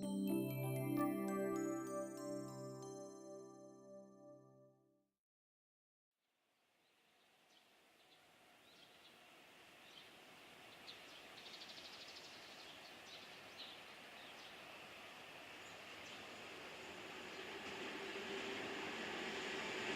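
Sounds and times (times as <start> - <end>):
small birds chirping: 7.5 - 9.2, 9.8 - 14.8, 15.6 - 17.6
distant freight train hiss: 8.2 - 19.9.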